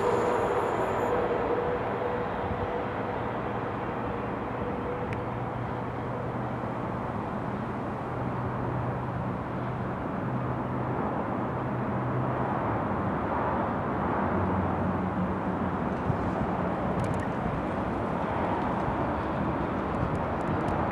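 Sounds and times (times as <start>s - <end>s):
train rolling rumble: 0.0s - 10.1s.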